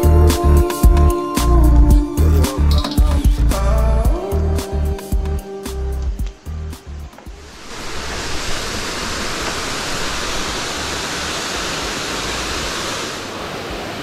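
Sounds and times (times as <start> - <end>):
waterfall rushing: 6.8 - 14.0.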